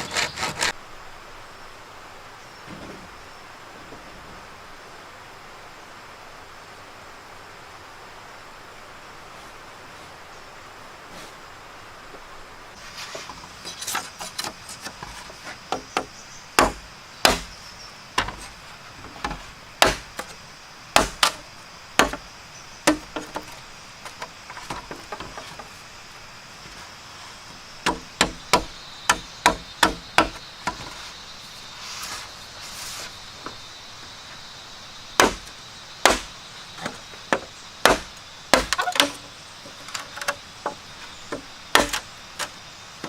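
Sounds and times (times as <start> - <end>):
tool striking wood: 15.7 - 17.6, 19.2 - 20.3, 21.0 - 21.4, 22.0 - 22.2, 22.9 - 23.5, 27.8 - 30.9, 35.2 - 36.3, 37.3 - 39.2, 40.2 - 42.0.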